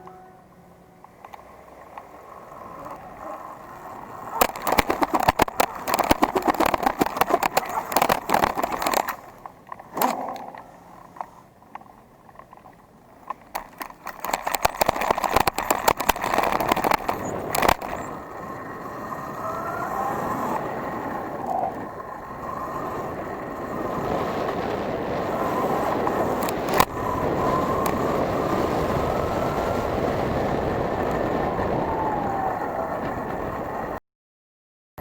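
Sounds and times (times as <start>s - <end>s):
faint electric motor whine: 0.0s - 34.0s
dirt bike rattling and knocking: 1.0s - 18.6s.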